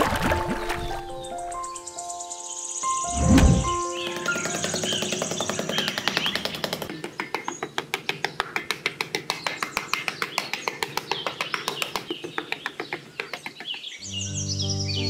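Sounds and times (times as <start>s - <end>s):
small birds chirping: 0.6s - 15.0s
rapid sharp clicks: 3.7s - 13.8s.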